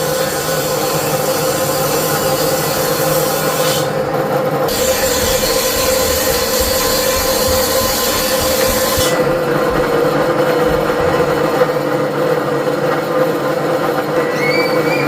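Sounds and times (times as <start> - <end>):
power tool rasping hum: 0.0 - 11.6.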